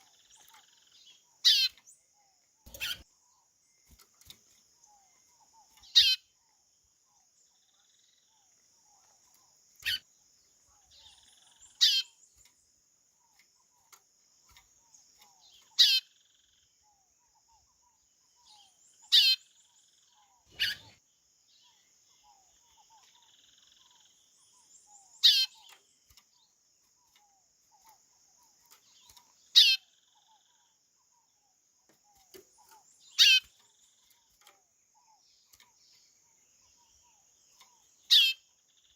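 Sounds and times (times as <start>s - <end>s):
bird whistled calls: 20.5s - 21.0s.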